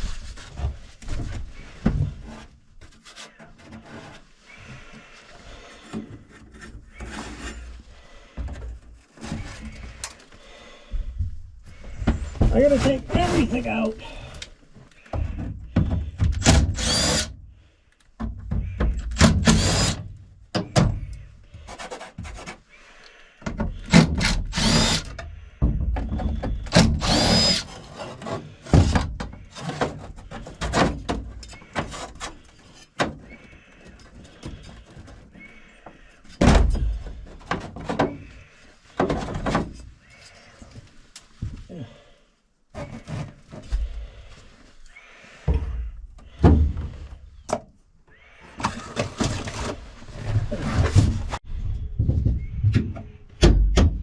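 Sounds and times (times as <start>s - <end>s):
thunks and knocks: 36.4s - 38.2s, 45.5s - 47.7s, 51.9s - 54.0s.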